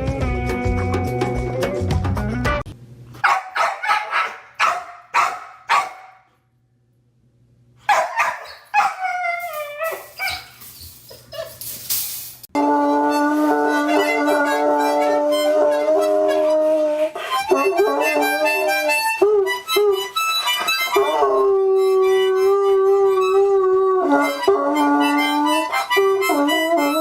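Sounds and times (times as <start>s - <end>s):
dog howling: 8.2s - 10.6s, 12.6s - 27.0s
harmonica chords: 12.6s - 27.0s.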